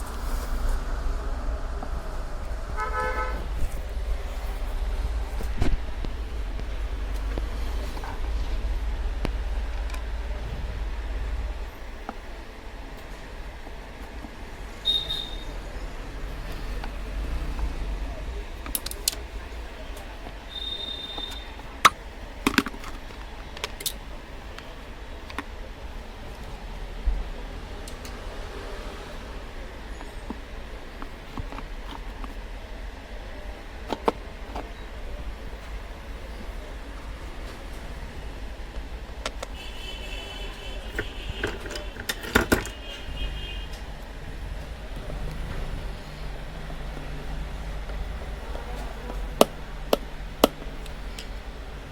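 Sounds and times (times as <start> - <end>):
low steady hum: 0.0 - 27.6.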